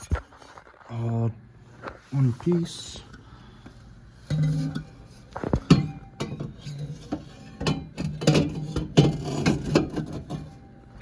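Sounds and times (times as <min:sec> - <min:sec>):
exhaust pipe clanking against metal: 0:05.6 - 0:10.6.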